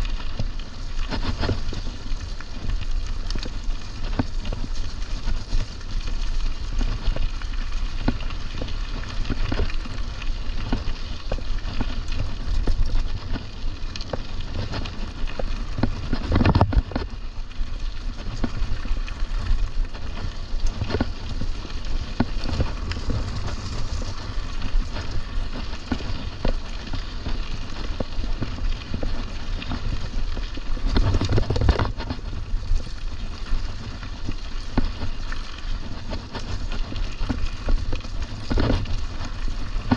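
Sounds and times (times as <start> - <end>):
bike tyres on trail: 0.0 - 39.9
wind buffeting microphone: 12.2 - 17.2, 18.2 - 35.2.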